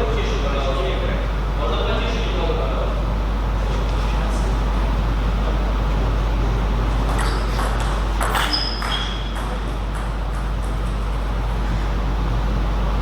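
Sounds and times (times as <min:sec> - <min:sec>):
low rumble and hum: 0:00.0 - 0:13.0
table tennis ball clicks: 0:07.0 - 0:11.0.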